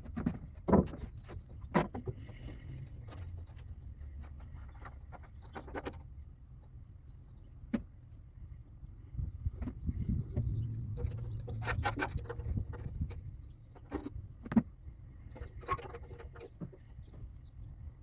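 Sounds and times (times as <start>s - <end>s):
low rumble: 10.0s - 13.1s.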